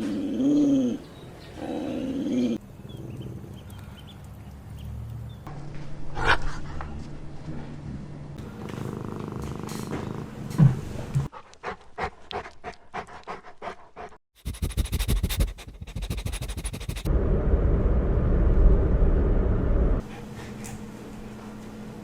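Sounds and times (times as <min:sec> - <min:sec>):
puppy panting: 0:11.3 - 0:17.1.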